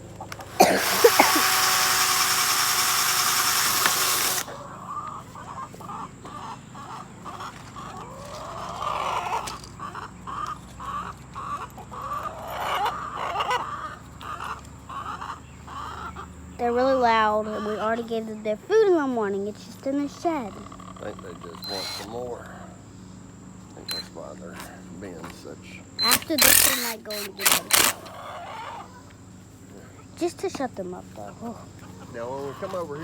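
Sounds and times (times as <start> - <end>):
chickens clucking: 0.0 - 1.9, 3.6 - 33.0.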